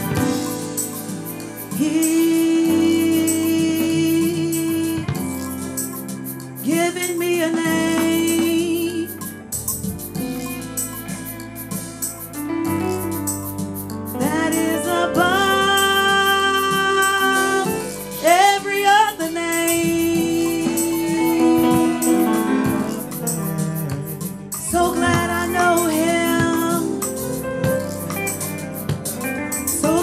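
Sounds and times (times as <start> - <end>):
guitar: 0.0 - 30.0
keyboard chords: 0.0 - 30.0
person singing long notes: 14.2 - 27.1.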